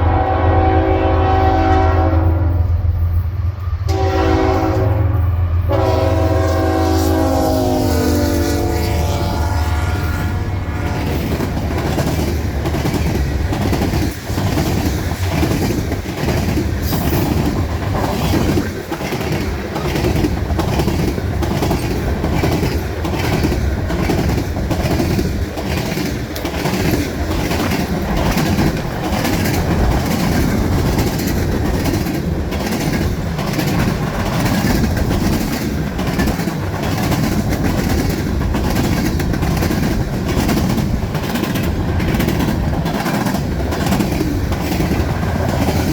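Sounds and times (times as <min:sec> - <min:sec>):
train wheels clacking over rail joints: 0:09.8 - 0:45.9.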